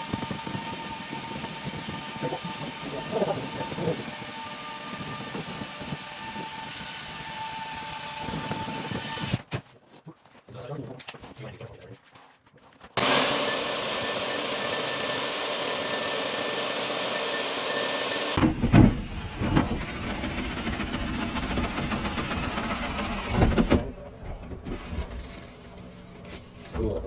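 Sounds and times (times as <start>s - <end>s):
vacuum cleaner running: 0.0s - 9.3s, 13.0s - 23.9s
dull thumps: 18.4s - 20.2s
rough scraping: 18.5s - 27.0s.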